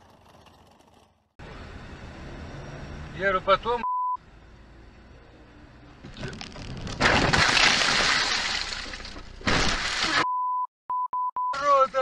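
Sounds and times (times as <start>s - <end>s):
censor bleep tone: 3.8s - 4.2s, 10.2s - 11.6s
vehicle crash: 5.9s - 10.2s.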